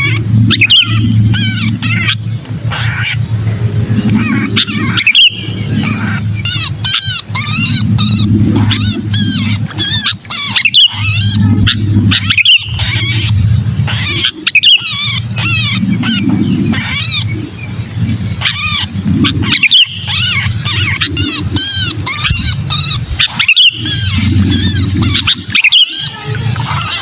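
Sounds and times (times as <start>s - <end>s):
bird distress squealing: 0.0s - 27.0s
low rumbling noise: 0.0s - 27.0s.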